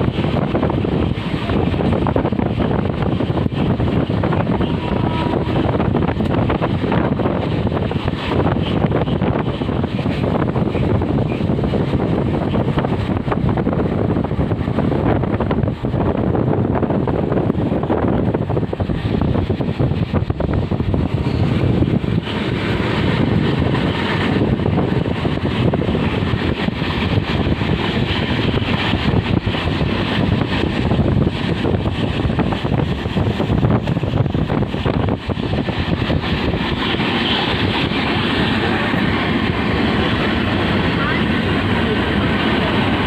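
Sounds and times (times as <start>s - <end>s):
train rumbling: 0.0s - 43.0s
wind buffeting microphone: 0.0s - 43.0s.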